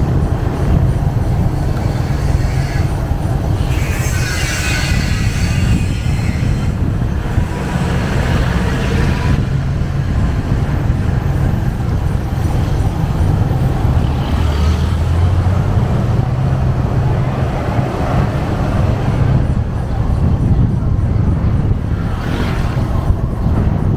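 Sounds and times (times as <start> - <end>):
motorbike engine rumble: 0.0 - 23.9
wind and road noise: 0.0 - 23.9.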